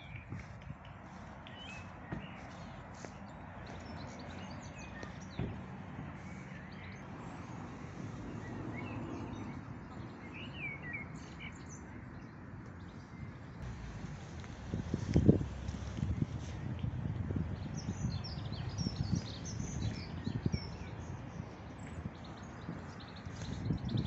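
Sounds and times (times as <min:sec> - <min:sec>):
small birds chirping: 0:00.0 - 0:24.0
low outdoor rumble: 0:13.6 - 0:24.0.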